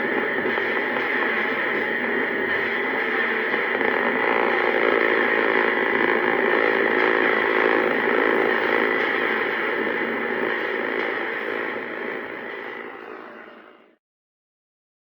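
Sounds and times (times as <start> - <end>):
synthesizer drone: 0.0 - 14.0.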